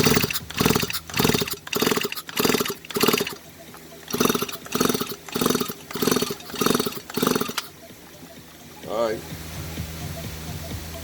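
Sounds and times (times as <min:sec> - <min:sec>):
chainsaw pull-start whirring: 0:00.0 - 0:07.8.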